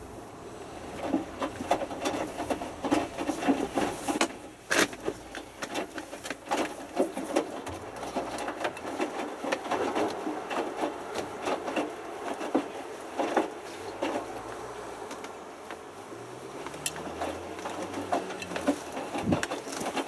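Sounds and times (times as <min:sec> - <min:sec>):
wet laundry sloshing and rustling: 0:00.2 - 0:14.7, 0:16.3 - 0:20.0
washing machine drum tumbling: 0:17.0 - 0:20.0.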